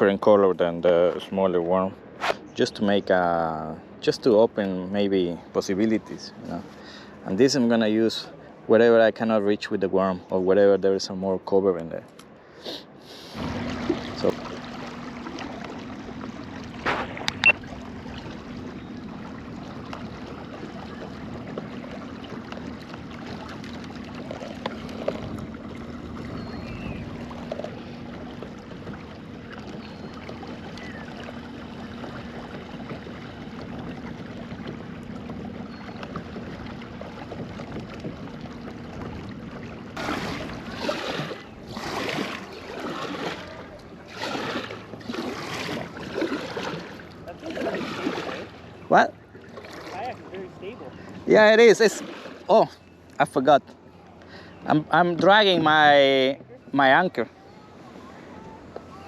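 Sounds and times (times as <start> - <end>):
water and hull noise: 0.0 - 59.0
paddle strokes splashing: 12.6 - 59.0.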